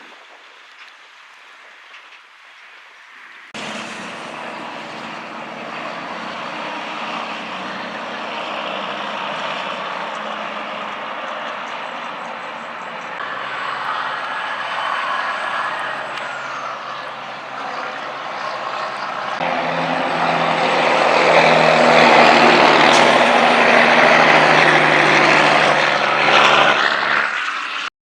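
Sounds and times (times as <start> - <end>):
truck tyres passing: 3.1 - 27.9
truck diesel engine drone: 3.5 - 27.9.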